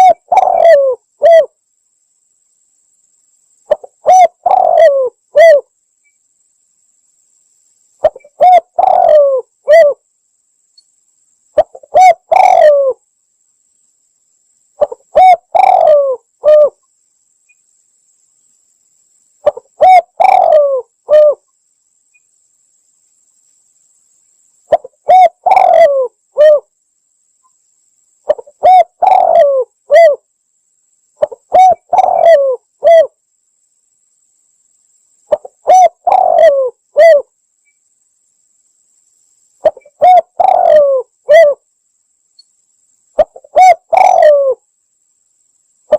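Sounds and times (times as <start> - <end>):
dove cooing: 0.0 - 1.5, 3.7 - 5.7, 8.0 - 10.0, 11.6 - 13.0, 14.8 - 16.8, 19.4 - 21.4, 24.7 - 26.7, 28.3 - 30.2, 31.2 - 33.2, 35.3 - 37.3, 39.6 - 41.6, 43.2 - 44.6.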